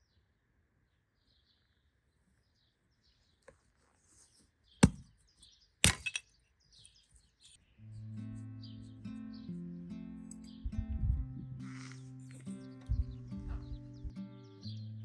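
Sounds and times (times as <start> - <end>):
birds chirping faintly: 0.0 - 15.0
quick small knocks: 4.8 - 5.1
sharp cracks: 4.8 - 5.1, 5.8 - 6.2
music: 7.8 - 15.0.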